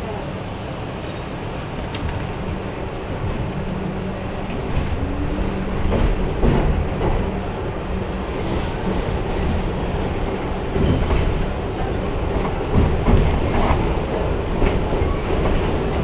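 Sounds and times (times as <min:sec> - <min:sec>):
subway car rumble and hum: 0:00.0 - 0:16.0
track knocks and clacks: 0:01.5 - 0:16.0.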